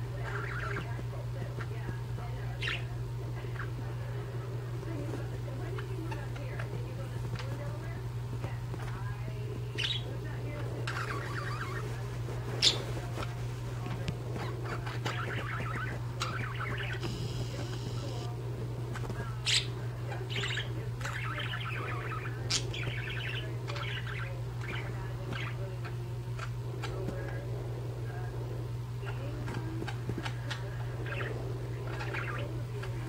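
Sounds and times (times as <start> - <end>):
steady low hum: 0.0 - 33.0
budgerigars chirping: 0.1 - 1.0, 2.5 - 3.9, 9.7 - 18.3, 19.0 - 27.4, 29.0 - 33.0.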